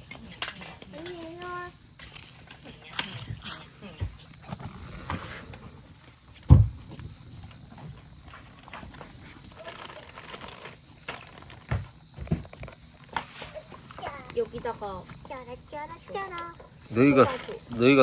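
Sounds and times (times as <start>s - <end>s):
heavy thump: 6.5s - 7.1s.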